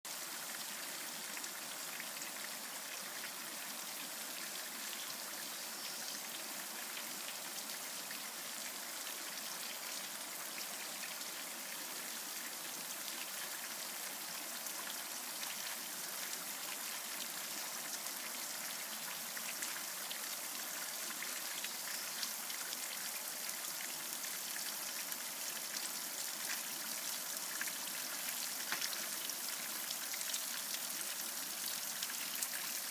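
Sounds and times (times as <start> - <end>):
rain pattering: 15.4 - 32.9.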